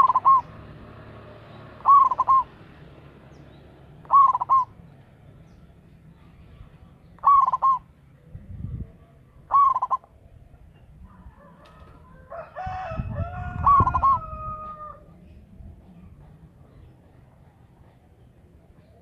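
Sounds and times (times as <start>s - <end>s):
bird holding a long call: 0.0s - 0.6s, 1.8s - 2.6s, 4.0s - 4.8s, 7.1s - 7.9s, 9.5s - 10.2s, 12.2s - 15.1s
dove cooing: 0.0s - 2.7s, 4.0s - 4.8s, 7.2s - 7.9s, 9.4s - 10.2s, 11.1s - 15.2s.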